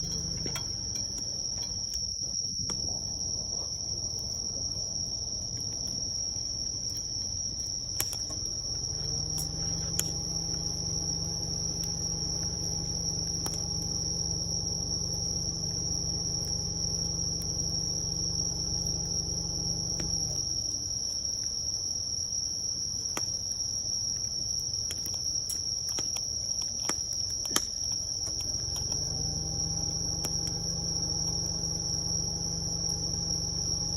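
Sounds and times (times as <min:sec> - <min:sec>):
wood fire crackling pops: 0:00.0 - 0:03.6, 0:06.9 - 0:21.6, 0:24.2 - 0:33.9
low pitched hum: 0:00.0 - 0:04.8, 0:08.2 - 0:20.8, 0:28.4 - 0:33.9
crickets chirring: 0:00.0 - 0:33.9.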